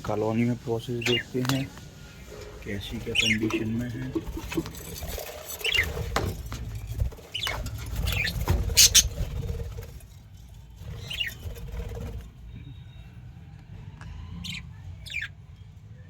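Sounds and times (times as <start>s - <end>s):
scratching and rustling: 0.3s - 12.5s
budgerigars chirping: 0.9s - 1.7s, 2.8s - 4.7s, 5.6s - 6.0s, 7.3s - 9.2s, 14.4s - 15.3s.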